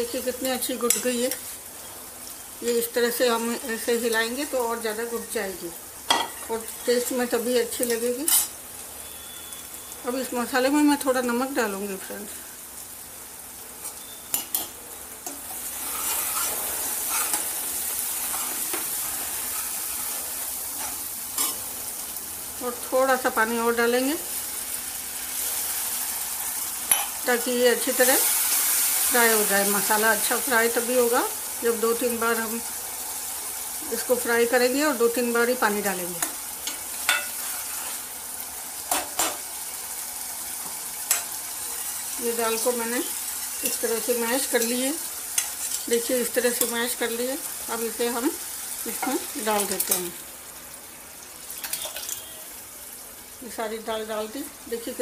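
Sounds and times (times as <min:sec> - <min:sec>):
spices sizzling in a pan: 0:00.0 - 0:55.0.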